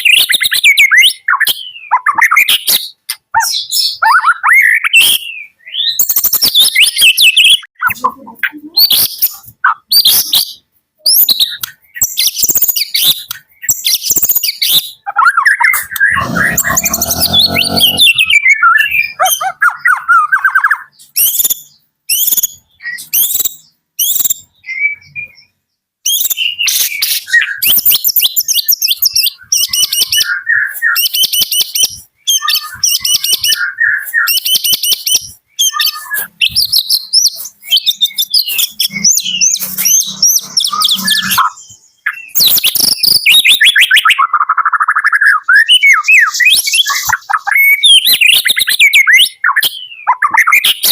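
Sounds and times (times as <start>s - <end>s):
songbird trills and whistles: 19.1s - 50.9s.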